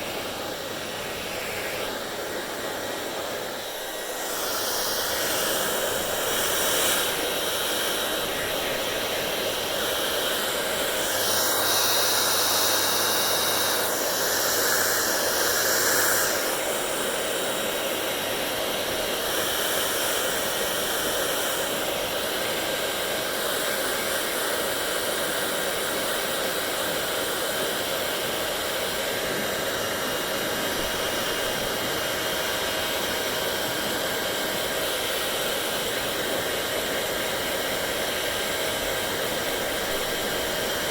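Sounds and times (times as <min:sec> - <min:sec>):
hair dryer blowing: 0:00.0 - 0:40.9.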